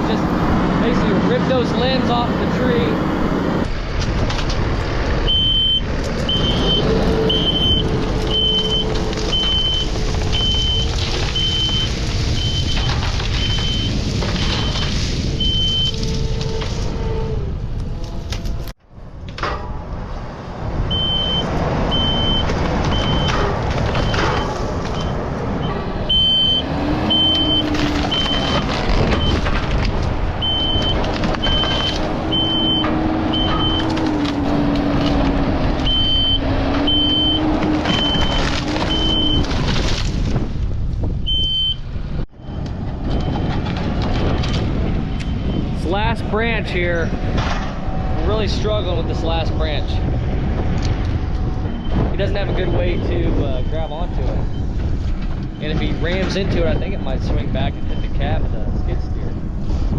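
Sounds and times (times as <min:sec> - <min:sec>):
skid steer engine under load: 0:00.0 - 0:41.7
reverse alarm beeping: 0:05.3 - 0:13.9, 0:20.9 - 0:23.4, 0:24.0 - 0:28.6, 0:30.4 - 0:33.9, 0:35.8 - 0:37.4, 0:41.3 - 0:41.8.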